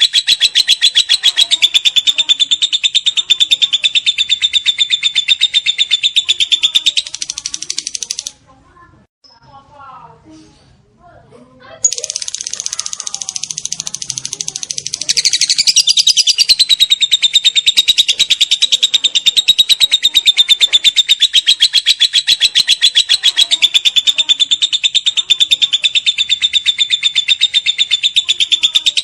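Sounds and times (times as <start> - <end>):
lovebird chattering trill: 0.0 - 8.4, 11.8 - 29.0.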